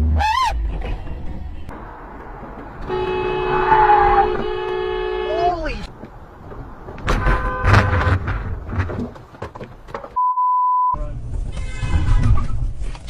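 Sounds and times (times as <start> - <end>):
censor bleep: 10.2 - 11.0.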